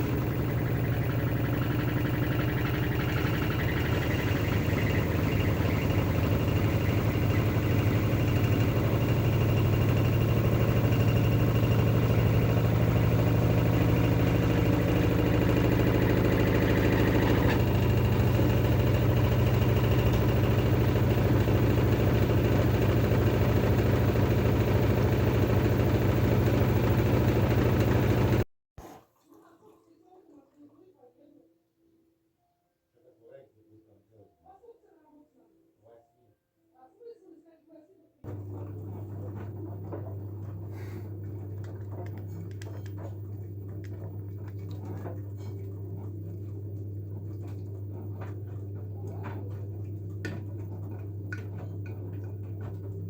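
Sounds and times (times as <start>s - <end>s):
washing machine spinning: 0.0s - 28.5s, 38.2s - 53.0s.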